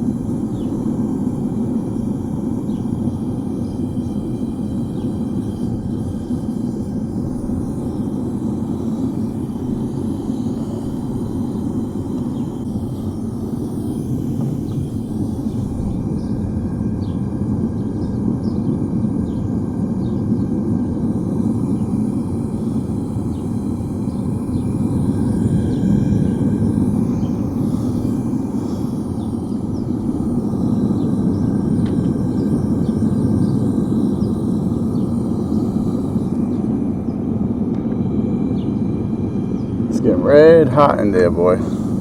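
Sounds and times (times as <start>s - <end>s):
gas furnace burner rushing: 0.0s - 42.0s.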